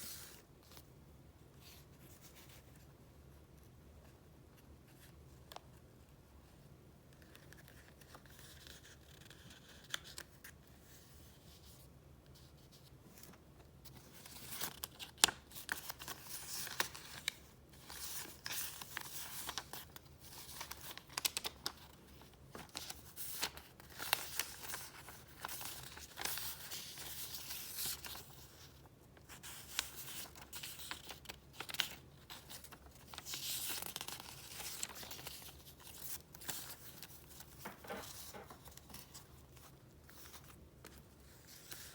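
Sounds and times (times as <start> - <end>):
paper rustling and crinkling: 12.4 - 41.9.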